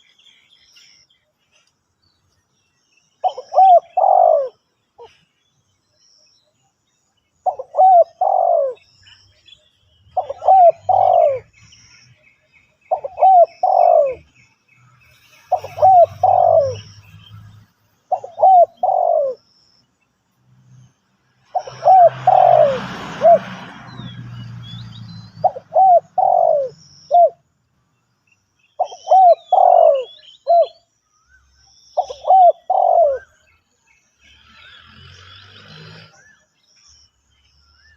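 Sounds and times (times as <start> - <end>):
small birds chirping: 0.0 - 22.8, 23.8 - 37.9
dove cooing: 3.2 - 5.1, 7.4 - 8.8, 10.2 - 11.5, 12.9 - 14.3, 15.4 - 16.9, 18.1 - 19.4, 21.5 - 23.6, 25.4 - 27.4, 28.8 - 30.8, 32.0 - 33.4.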